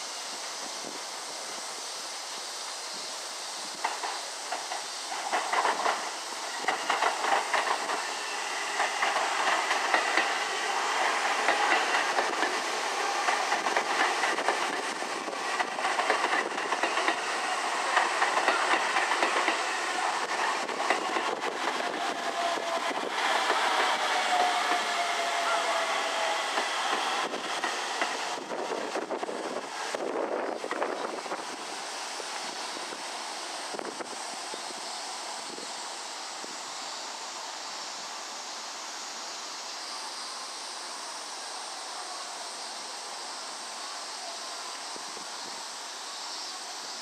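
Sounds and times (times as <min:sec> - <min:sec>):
wheels clattering over rail joints: 0:03.8 - 0:08.0
train motor whine: 0:05.1 - 0:34.1.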